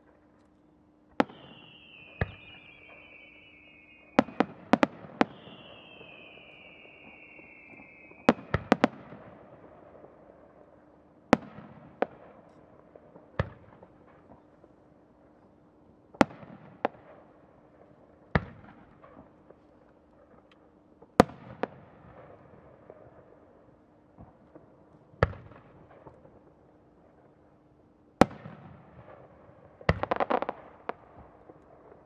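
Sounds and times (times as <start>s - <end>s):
fireworks bursting: 1.1s - 10.3s, 29.8s - 32.0s
firework whistles: 1.2s - 9.7s.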